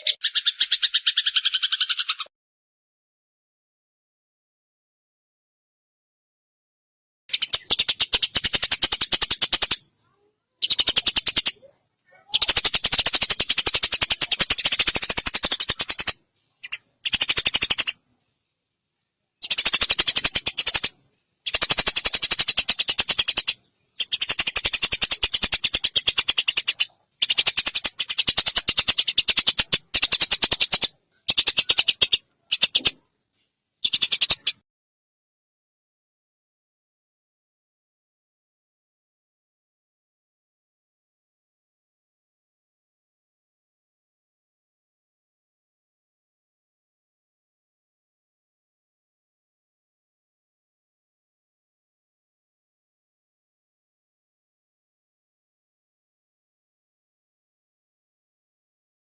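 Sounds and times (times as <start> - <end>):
sparrows chattering: 0.0 - 2.3, 7.3 - 18.0, 19.4 - 33.0, 33.8 - 34.6.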